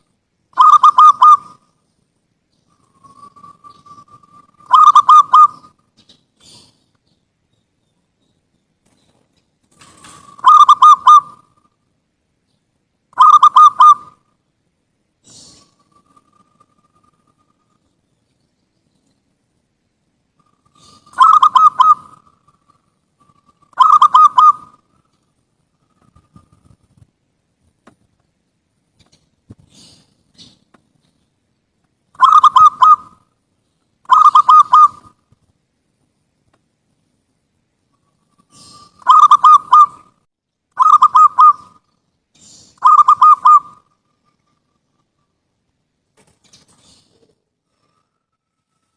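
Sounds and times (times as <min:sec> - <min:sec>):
dove cooing: 0:00.6 - 0:01.7, 0:02.7 - 0:05.8, 0:09.8 - 0:11.6, 0:13.2 - 0:14.2, 0:20.4 - 0:24.9, 0:32.2 - 0:33.2, 0:34.0 - 0:35.2, 0:38.3 - 0:40.1, 0:40.8 - 0:41.9, 0:42.5 - 0:44.6.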